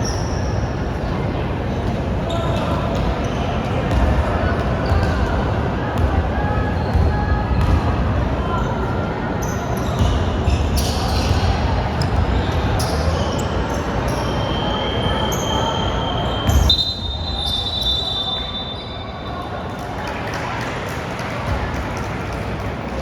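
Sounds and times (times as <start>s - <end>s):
players' voices: 0.7s - 23.0s
basketball bouncing on court: 3.8s - 5.4s, 6.9s - 8.1s.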